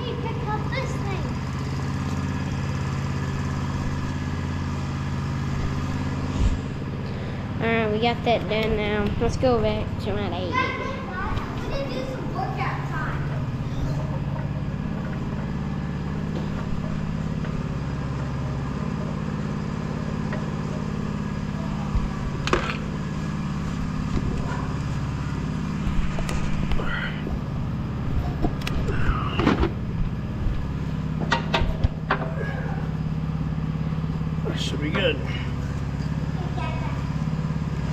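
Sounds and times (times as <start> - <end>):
motor humming: 0.0 - 37.9
metallic clanks and knocks: 31.2 - 32.4.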